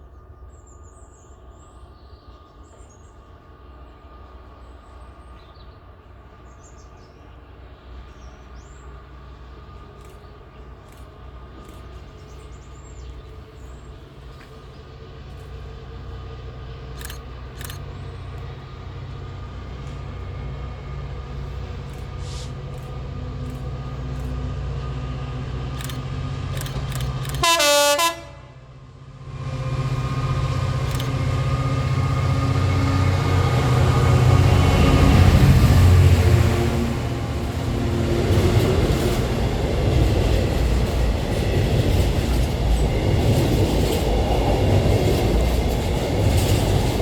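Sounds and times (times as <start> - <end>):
train approaching: 0.0 - 47.0
train horn blast: 27.3 - 28.8.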